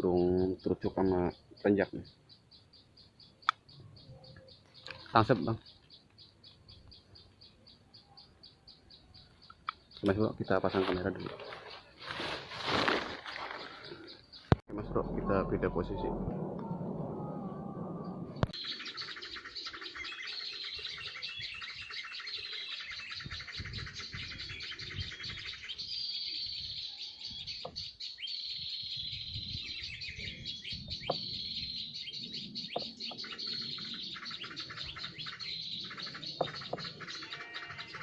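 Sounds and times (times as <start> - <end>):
small birds twittering: 0.0 - 12.0, 12.6 - 38.0
high falling bird call: 27.1 - 38.0.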